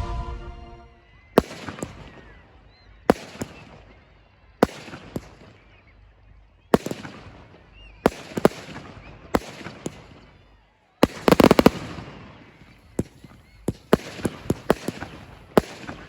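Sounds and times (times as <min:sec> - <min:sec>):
fireworks bursting with sharp bangs: 0:00.0 - 0:04.0, 0:06.8 - 0:10.4, 0:11.0 - 0:16.0.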